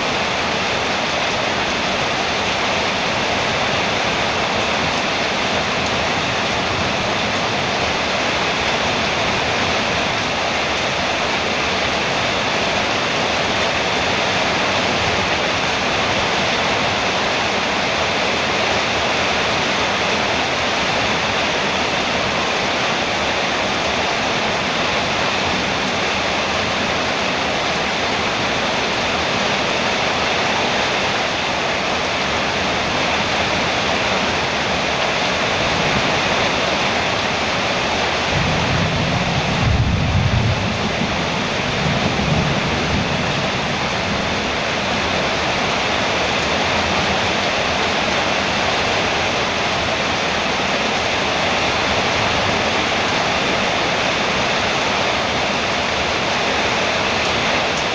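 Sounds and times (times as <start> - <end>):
heavy rain on a metal roof: 0.0 - 57.9
thunder rumbling: 38.1 - 45.8.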